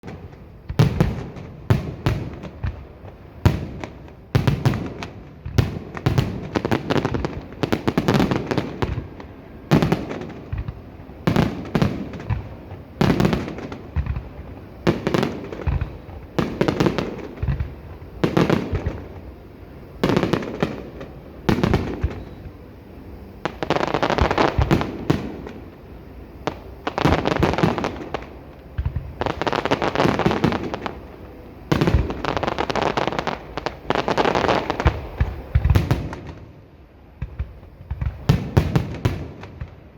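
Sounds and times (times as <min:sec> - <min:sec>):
fireworks crackle: 0:00.0 - 0:22.6, 0:23.4 - 0:36.5, 0:37.1 - 0:39.9
fireworks booming bangs: 0:00.0 - 0:39.9.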